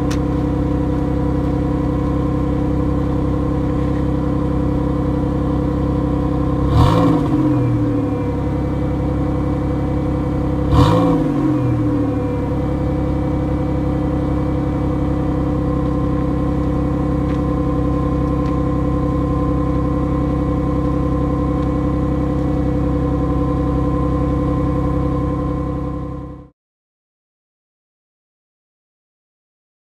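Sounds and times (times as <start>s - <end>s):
car exhaust idling and revving: 0.0s - 26.5s.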